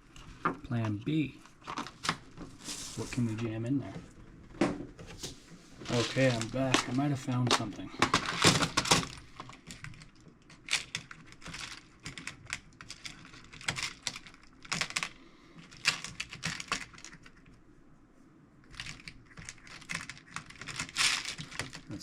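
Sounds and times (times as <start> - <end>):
small screws clicking and rattling: 8.1 - 17.4, 18.7 - 21.9.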